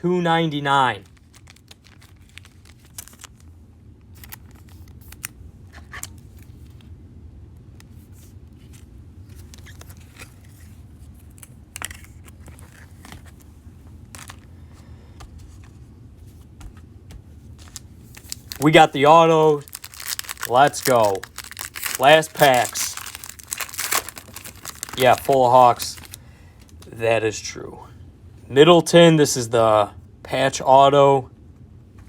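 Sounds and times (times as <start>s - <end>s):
low room hum: 0.0s - 32.0s
cards and wrappers rustling: 1.0s - 3.5s, 4.1s - 6.8s, 7.9s - 26.8s.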